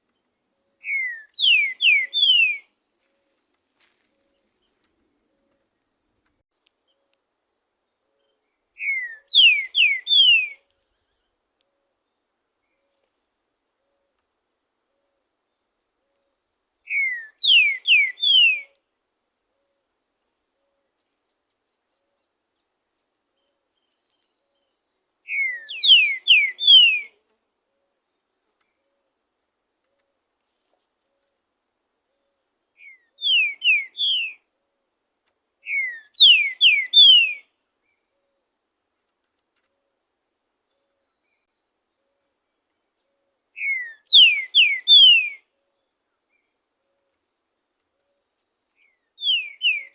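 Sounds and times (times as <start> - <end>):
bird whistled song: 0.7 - 2.7, 8.1 - 11.3, 16.8 - 18.8, 23.4 - 27.2, 32.8 - 34.4, 35.6 - 37.5, 43.6 - 45.5, 48.1 - 49.9.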